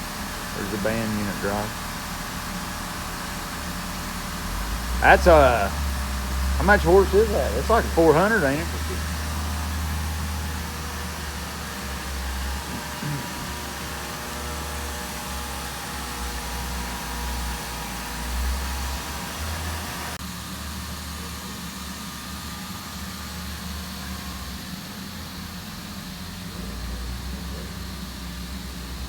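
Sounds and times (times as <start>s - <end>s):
machinery hum: 0.0s - 20.2s
steady tones: 4.6s - 9.8s.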